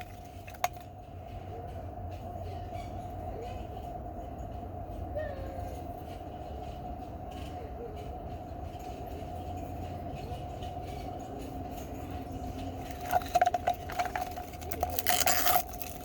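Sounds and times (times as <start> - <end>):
steady background hum: 0.0 - 16.0
plastic packaging crinkling: 12.8 - 16.0.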